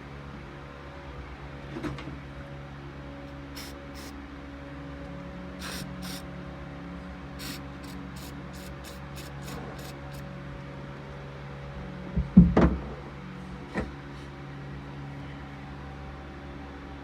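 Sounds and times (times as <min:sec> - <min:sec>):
steady low hum: 0:02.2 - 0:10.7
aerosol spray can hissing: 0:03.6 - 0:04.2, 0:05.6 - 0:06.2, 0:07.4 - 0:10.2.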